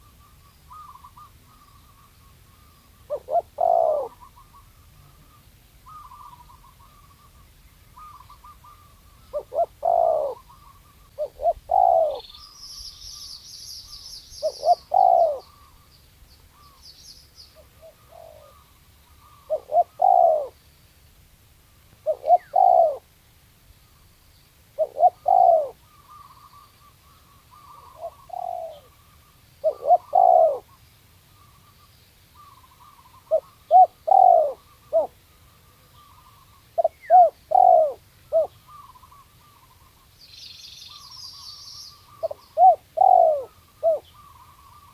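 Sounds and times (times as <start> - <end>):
dove cooing: 0.0 - 7.4, 8.0 - 12.3, 14.4 - 15.8, 17.5 - 20.6, 22.0 - 23.1, 24.8 - 30.8, 32.4 - 40.0, 41.9 - 44.9
small bird chirping: 0.0 - 21.0, 22.0 - 23.0, 23.8 - 44.9.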